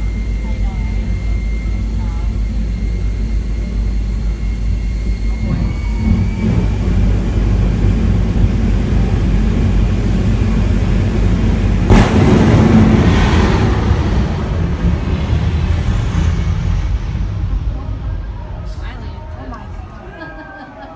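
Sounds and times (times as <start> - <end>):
jet engine rumble: 0.0 - 20.9
loud jet blast: 5.3 - 20.2.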